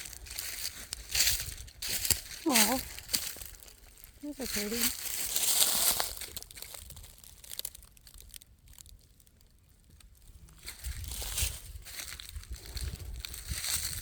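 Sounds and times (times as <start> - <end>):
footsteps crunching through dry leaves: 0.0 - 8.9, 10.3 - 14.0
faint crackles: 0.0 - 14.0.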